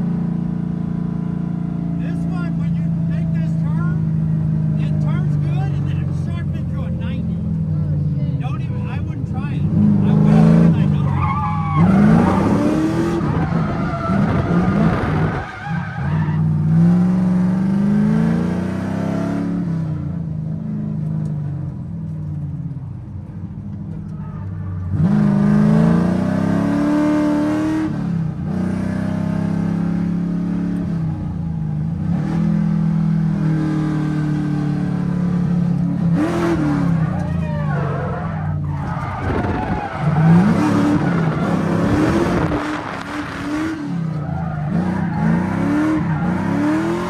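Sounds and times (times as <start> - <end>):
tyres squealing: 9.2 - 16.6, 36.1 - 47.0
car engine revving hard: 9.5 - 20.1, 24.9 - 47.0.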